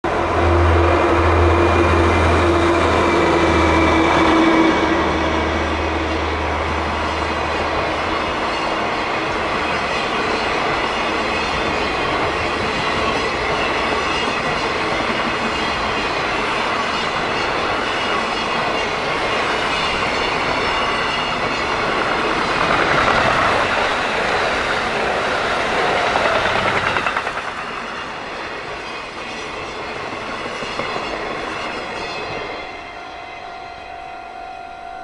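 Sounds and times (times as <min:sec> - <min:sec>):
diesel locomotive engine hum: 0:00.0 - 0:35.0
freight wagons clattering over rails: 0:20.2 - 0:28.4.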